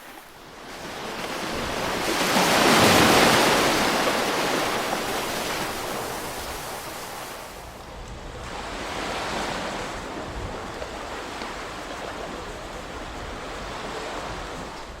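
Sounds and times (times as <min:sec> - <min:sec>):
ocean waves washing in: 0:00.0 - 0:15.0.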